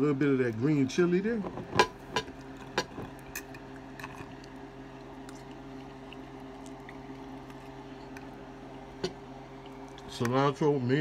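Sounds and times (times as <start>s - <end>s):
steady low hum: 0.0s - 11.0s
person chewing food: 1.8s - 10.1s.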